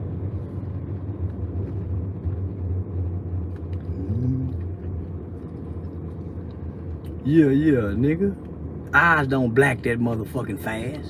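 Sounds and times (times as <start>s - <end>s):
steady low rumble: 0.0s - 11.0s
low voiced hum: 3.7s - 5.3s.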